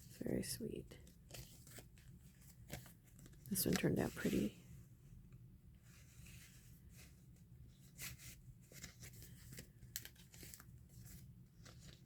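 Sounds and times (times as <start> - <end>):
paper rustling: 1.0 - 4.6, 6.0 - 12.0.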